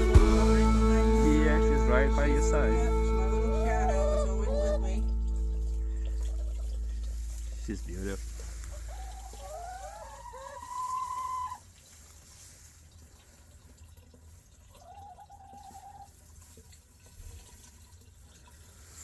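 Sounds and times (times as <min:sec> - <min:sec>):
hens calling: 0:00.0 - 0:11.6
water trickling from a jug: 0:00.6 - 0:19.0.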